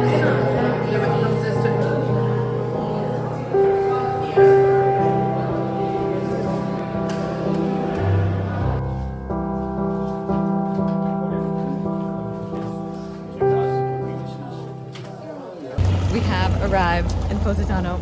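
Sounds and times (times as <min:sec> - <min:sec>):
background music with held chords: 0:00.0 - 0:15.7.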